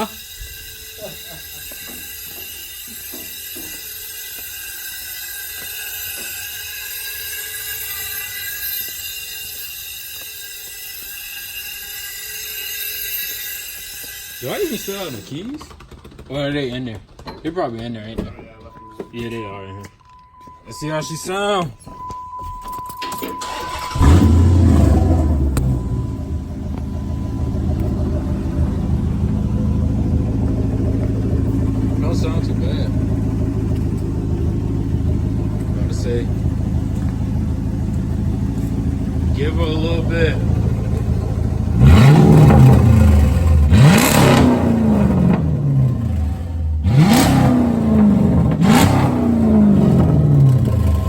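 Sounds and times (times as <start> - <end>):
car chime tone: 0.0 - 11.0, 17.7 - 51.0
engine cranking: 0.0 - 51.0
engine starting and idling: 14.4 - 19.4, 22.8 - 51.0.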